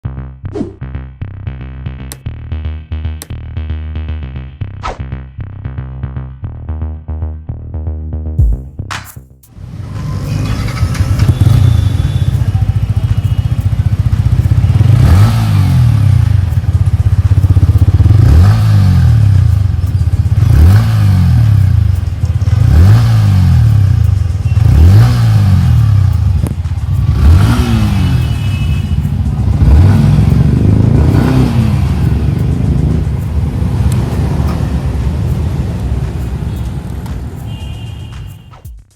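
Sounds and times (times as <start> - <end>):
motorcycle engine idling and revving: 9.5 - 38.9.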